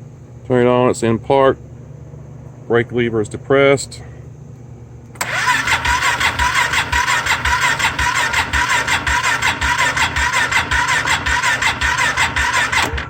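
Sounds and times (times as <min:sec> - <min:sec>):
electric starter cranking engine: 0:05.2 - 0:13.0.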